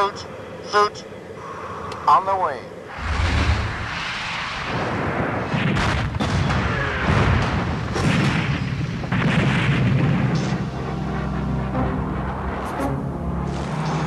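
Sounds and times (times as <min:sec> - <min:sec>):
continuous low rumble: 0:00.0 - 0:14.0
heavy explosion booms: 0:02.9 - 0:10.7.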